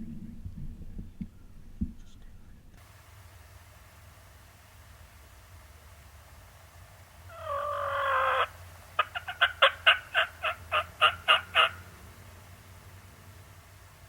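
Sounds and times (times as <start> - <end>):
turkey yelping: 7.3 - 11.9.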